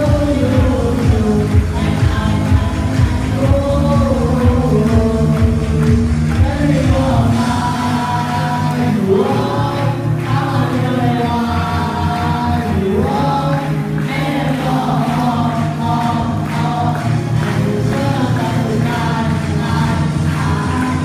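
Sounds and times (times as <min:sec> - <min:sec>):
musical accompaniment: 0:00.0 - 0:21.0
choir singing: 0:06.4 - 0:21.0.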